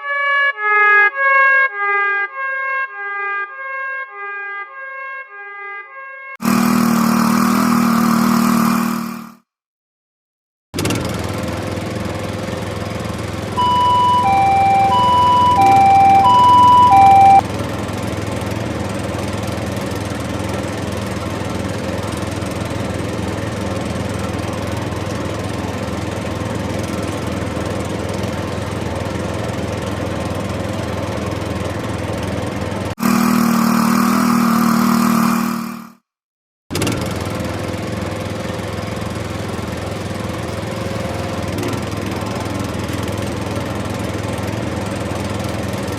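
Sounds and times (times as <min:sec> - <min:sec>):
two-tone ambulance siren: 0:00.0 - 0:06.4, 0:13.6 - 0:17.5
vehicle engine drone: 0:06.4 - 0:09.4, 0:10.8 - 0:36.0, 0:36.7 - 0:45.9.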